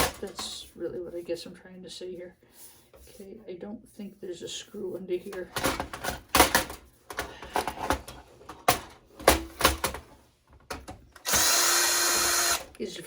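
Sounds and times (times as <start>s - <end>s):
power drill running: 11.2s - 12.8s.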